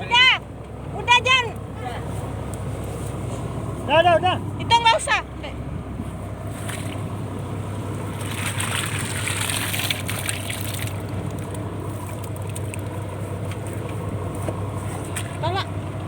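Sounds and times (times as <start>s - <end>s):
boat engine running: 0.0s - 16.0s
water splashing and trickling: 6.3s - 16.0s.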